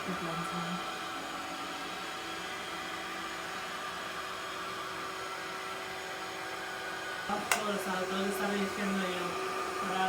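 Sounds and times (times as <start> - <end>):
suction fan whirring: 0.0 - 10.0.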